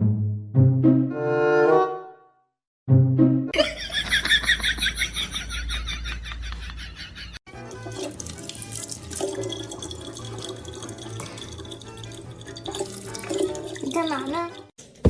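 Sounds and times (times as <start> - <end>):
background music: 0.0 - 2.3, 2.9 - 4.0, 7.5 - 14.7
tap water running and splashing: 7.5 - 14.8.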